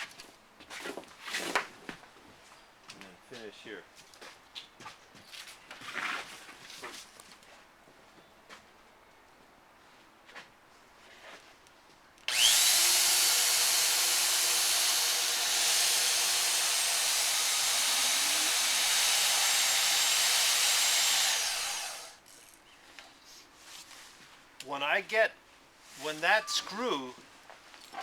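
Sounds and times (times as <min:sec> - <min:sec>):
electric drill boring into wood: 0:12.3 - 0:22.2.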